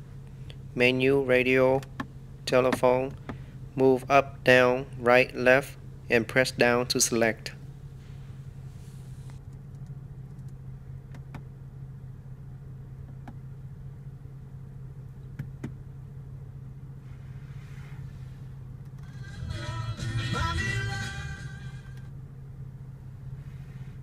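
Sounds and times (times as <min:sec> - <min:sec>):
car engine idling: 0:00.0 - 0:24.0
music: 0:19.0 - 0:22.0.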